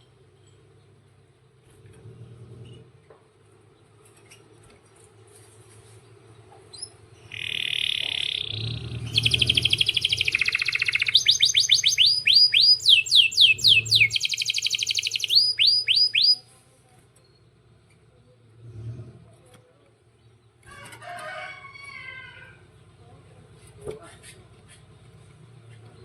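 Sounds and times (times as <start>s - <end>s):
canary singing trills: 6.7s - 16.5s.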